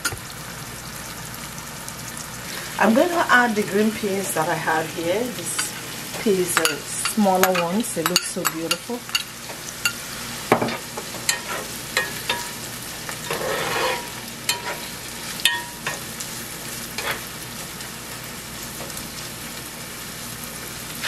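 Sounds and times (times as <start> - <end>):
vegetables sizzling in oil: 0.0 - 21.0
spatula scraping a pan: 10.7 - 12.5, 13.2 - 14.9, 17.0 - 17.3.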